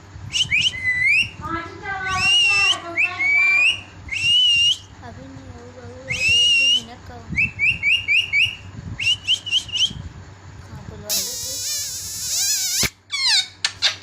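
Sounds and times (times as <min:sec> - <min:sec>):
parrot whistling: 0:00.3 - 0:01.4, 0:02.1 - 0:04.9, 0:06.1 - 0:10.0, 0:11.1 - 0:13.6.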